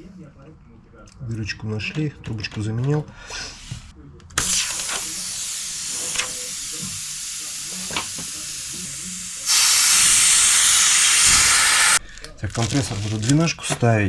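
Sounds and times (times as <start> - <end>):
pressurised gas hissing: 3.3 - 12.0.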